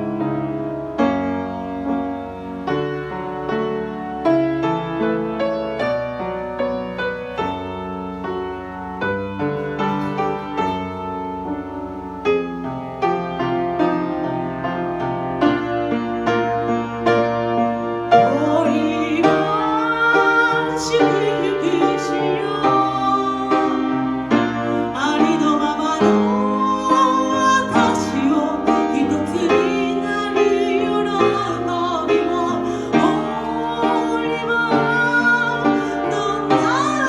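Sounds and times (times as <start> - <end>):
piano accompaniment: 0.0 - 37.0
woman singing a slow ballad: 18.2 - 37.0.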